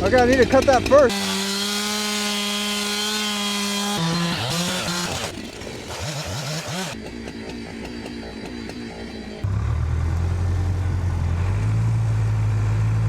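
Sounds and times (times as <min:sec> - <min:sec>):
chainsaw cutting ice: 0:00.0 - 0:09.1.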